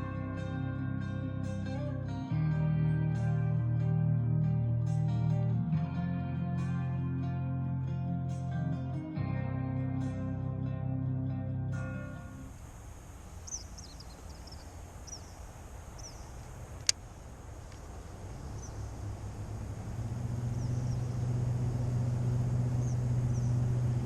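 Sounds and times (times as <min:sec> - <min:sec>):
low engine hum: 0:00.0 - 0:24.0
high bird chirps: 0:13.4 - 0:16.8, 0:18.4 - 0:19.0, 0:20.4 - 0:21.4
sharp click: 0:16.8 - 0:17.0.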